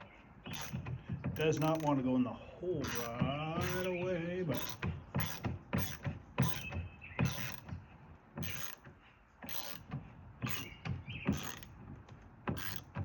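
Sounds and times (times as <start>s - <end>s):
lock squeaking: 0.4s - 2.0s, 2.8s - 7.7s, 8.4s - 8.8s, 9.4s - 11.8s, 12.5s - 13.0s
lock scraping and knocking: 0.4s - 2.1s, 2.8s - 13.0s.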